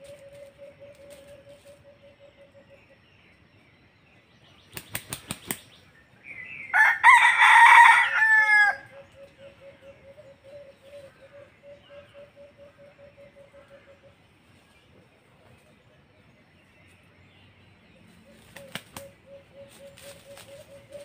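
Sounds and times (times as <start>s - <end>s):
rooster crowing: 6.7s - 8.9s.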